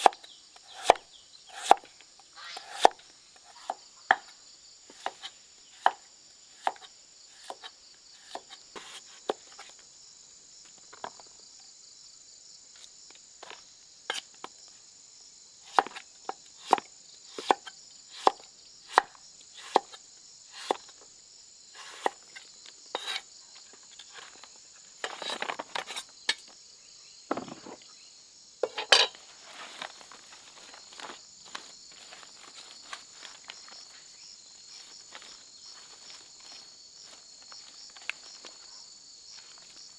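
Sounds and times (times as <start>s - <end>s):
insects droning: 0.0s - 39.9s
rustling and scraping: 23.8s - 26.4s, 27.3s - 27.9s, 28.6s - 38.6s.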